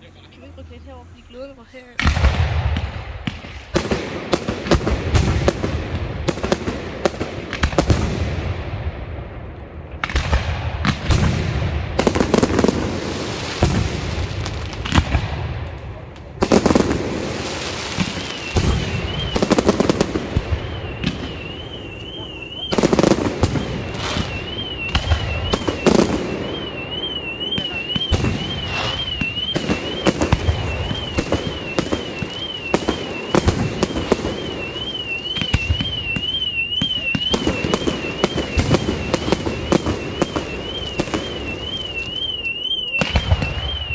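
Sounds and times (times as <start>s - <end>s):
fireworks bangs and crackles: 0.0s - 43.9s
fireworks booms: 2.0s - 43.9s
high warbling alarm tone: 16.7s - 43.9s.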